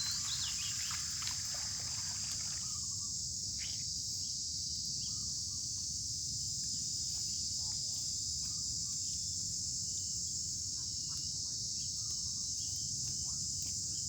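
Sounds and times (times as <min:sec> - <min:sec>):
insects chirring: 0:00.0 - 0:04.2.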